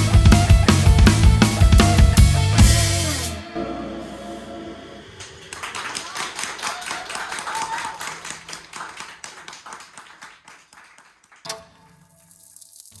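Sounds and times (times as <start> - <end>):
audience clapping: 5.2 - 11.6.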